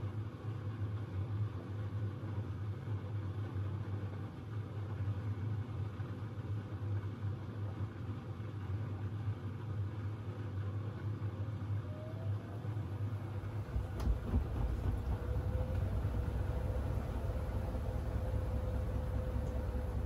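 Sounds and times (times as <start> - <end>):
washing machine rumble: 0.1 - 20.0
faint steady whine: 8.4 - 20.0.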